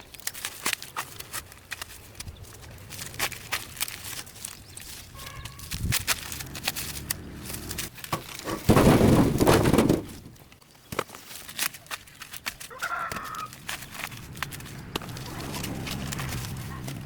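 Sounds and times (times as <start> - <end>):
chicken clucking: 12.7 - 13.5
chicken rough call: 12.7 - 13.5.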